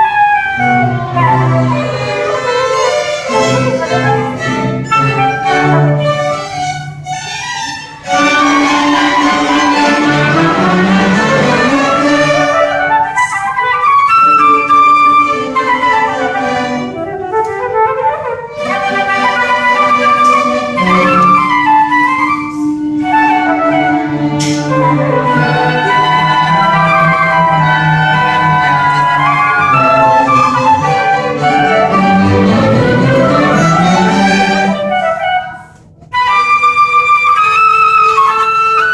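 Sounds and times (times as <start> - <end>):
orchestra playing classical music: 0.0 - 38.9.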